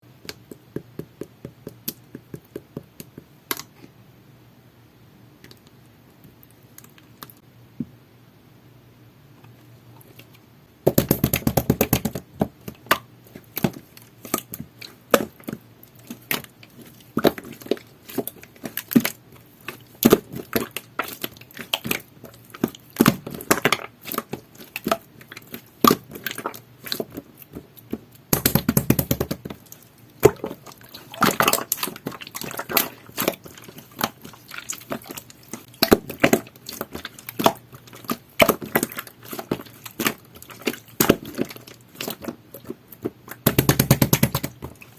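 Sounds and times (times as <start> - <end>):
slime clicking and crackling: 12.8 - 44.9.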